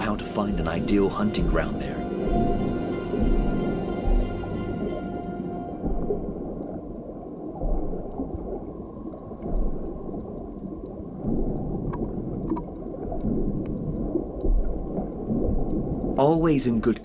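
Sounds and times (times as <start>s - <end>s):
soft low thumps: 0.0s - 6.6s
underwater bubbling and gurgling: 0.0s - 17.0s.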